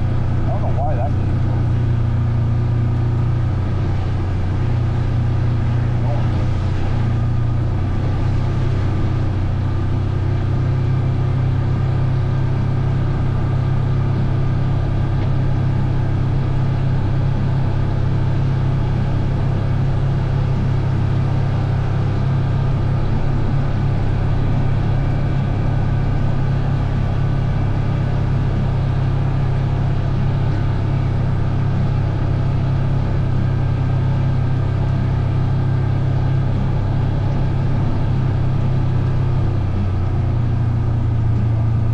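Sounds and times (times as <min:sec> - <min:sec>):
vehicle engine droning steadily: 0:00.0 - 0:41.9.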